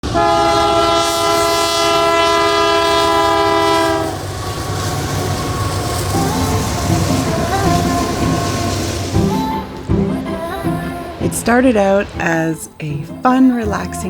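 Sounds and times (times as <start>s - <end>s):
sustained horn chord: 0.0s - 4.2s, 6.0s - 14.0s
low rumbling noise: 3.2s - 13.6s.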